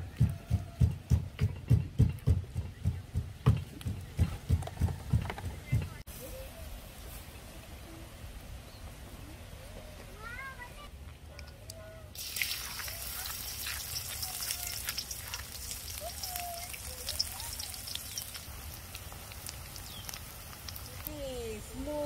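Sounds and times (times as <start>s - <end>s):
food sizzling in hot oil: 12.2s - 21.4s.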